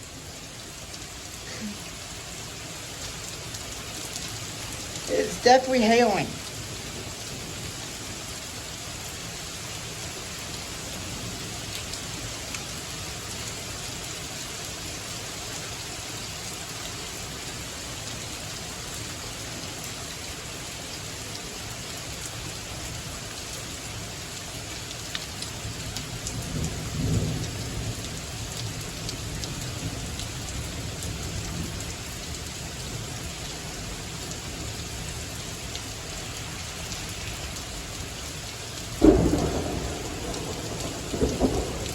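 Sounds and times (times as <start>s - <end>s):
rain and hail falling: 0.0s - 41.9s
thunder rumbling: 26.4s - 28.1s, 39.0s - 41.9s.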